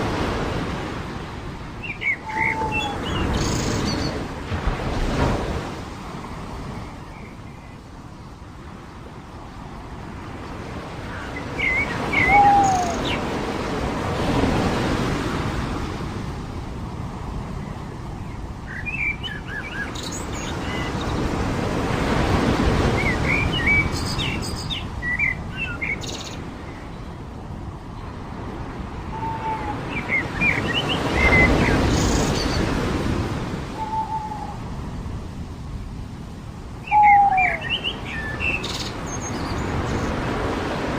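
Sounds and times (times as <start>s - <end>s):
waves washing onto a beach: 0.0s - 40.9s
brief curved bird calls: 2.0s - 4.0s.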